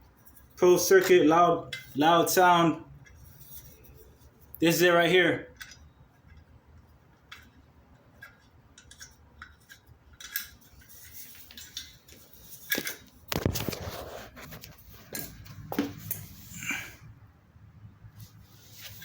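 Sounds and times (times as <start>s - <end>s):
metallic clicks of tools: 8.2s - 10.6s.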